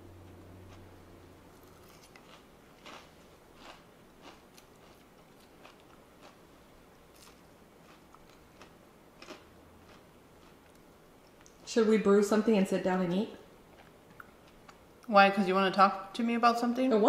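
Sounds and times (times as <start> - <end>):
chewing crisp fried food: 0.6 - 0.9, 1.5 - 11.6.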